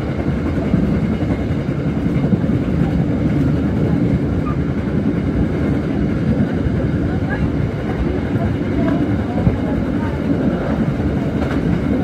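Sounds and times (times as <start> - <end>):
train running at speed: 0.0 - 12.0.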